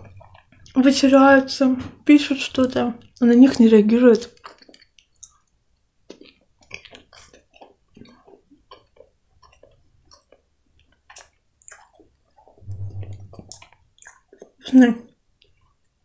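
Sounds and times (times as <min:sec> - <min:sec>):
wet chewing and mouth smacks: 0:00.0 - 0:00.9, 0:04.1 - 0:16.0.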